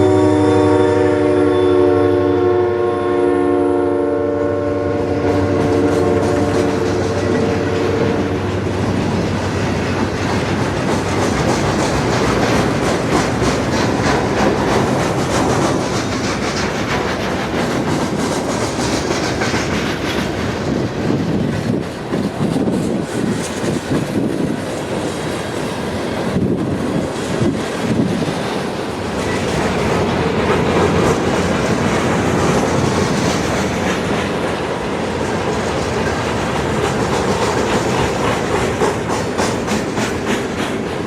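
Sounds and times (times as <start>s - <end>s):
train horn blast: 0.0s - 8.7s
train wheels clicking on rails: 5.0s - 41.0s.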